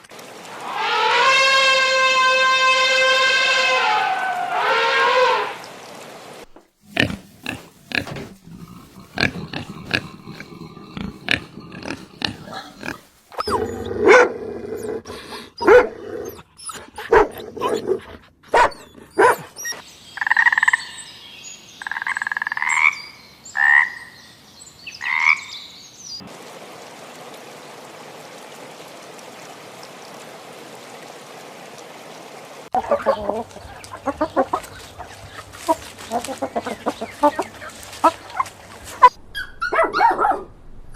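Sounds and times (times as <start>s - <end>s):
steady hiss: 6.5s - 13.4s
frogs croaking: 6.8s - 13.6s, 20.0s - 24.2s, 25.0s - 25.6s, 32.7s - 39.1s.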